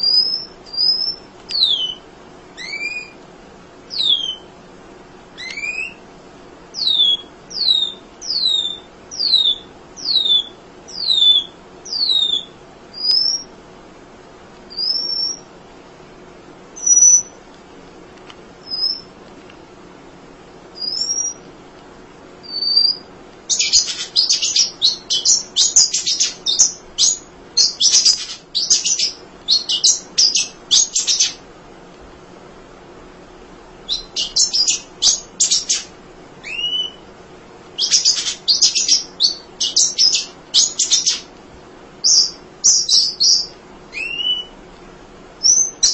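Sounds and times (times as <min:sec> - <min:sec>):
bird chattering twitter: 0:02.6 - 0:03.2, 0:05.4 - 0:06.0, 0:06.8 - 0:13.5, 0:22.5 - 0:31.4, 0:33.9 - 0:37.0, 0:37.8 - 0:41.3, 0:42.0 - 0:44.5
bird whistling falling notes: 0:02.6 - 0:03.2, 0:05.4 - 0:06.0, 0:33.9 - 0:37.0, 0:42.1 - 0:44.5.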